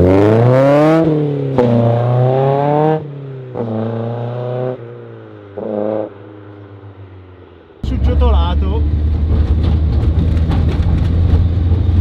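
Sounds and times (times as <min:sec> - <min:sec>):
car engine accelerating hard: 0:00.0 - 0:04.8.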